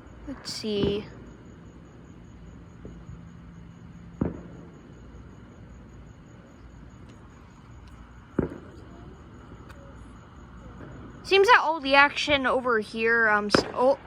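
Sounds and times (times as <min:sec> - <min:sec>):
firework bangs: 0:00.4 - 0:01.8, 0:02.6 - 0:05.9, 0:07.9 - 0:12.6, 0:13.3 - 0:14.0.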